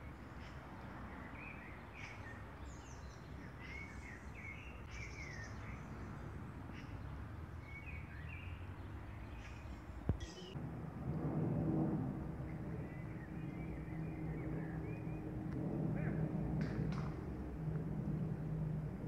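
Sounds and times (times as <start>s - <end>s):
small birds chirping: 0.0s - 10.6s
low outdoor rumble: 0.0s - 19.0s.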